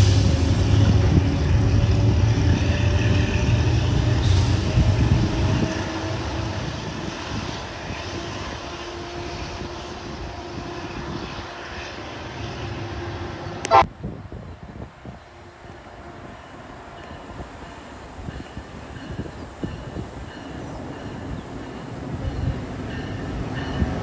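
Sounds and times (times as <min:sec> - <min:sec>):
train rumbling past: 0:00.0 - 0:24.0.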